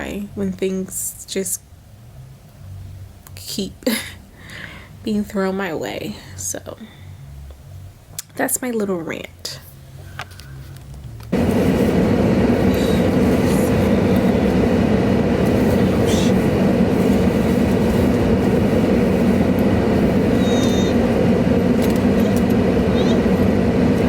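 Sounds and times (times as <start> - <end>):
car cabin road noise: 0.0 - 24.0.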